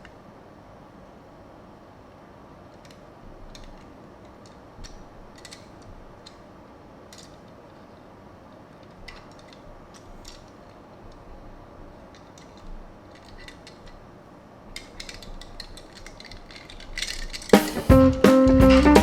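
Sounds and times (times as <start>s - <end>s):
steady low background hum: 0.0s - 19.0s
light clicks and taps of toy cars: 2.7s - 6.5s, 7.1s - 7.9s, 8.5s - 14.0s, 14.7s - 17.7s.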